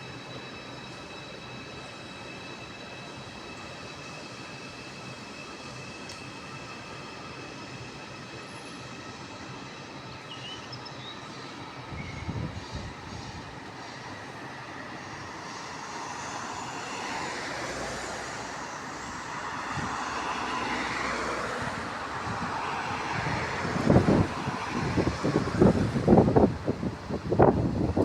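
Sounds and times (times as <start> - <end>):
train rumble and hiss: 0.0 - 28.0
wind buffeting microphone: 11.8 - 13.8, 19.6 - 20.1, 21.8 - 28.0.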